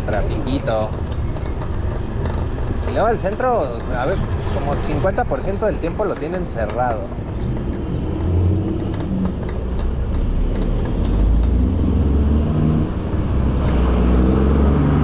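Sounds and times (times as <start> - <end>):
traffic engines humming: 0.0 - 15.0.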